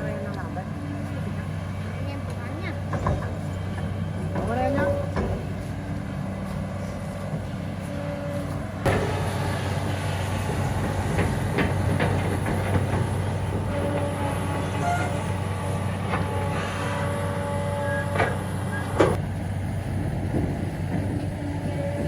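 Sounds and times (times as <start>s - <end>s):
heavy engine humming: 0.0s - 22.0s
knocks and clanks: 2.3s - 6.0s, 8.4s - 15.3s, 18.1s - 19.2s.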